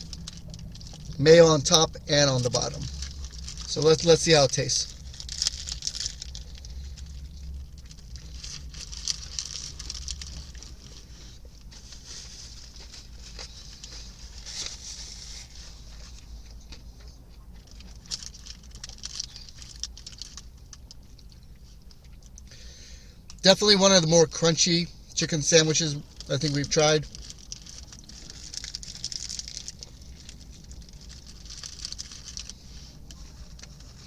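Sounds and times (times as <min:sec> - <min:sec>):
crunchy chewing: 0:00.0 - 0:01.2, 0:02.3 - 0:03.8, 0:04.9 - 0:22.5
steady low hum: 0:00.0 - 0:34.0.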